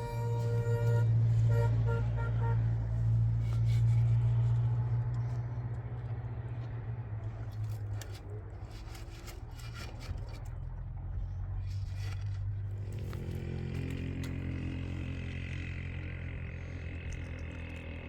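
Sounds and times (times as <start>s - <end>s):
short horn toots: 0.0s - 3.8s
vehicle engine running: 0.0s - 18.0s.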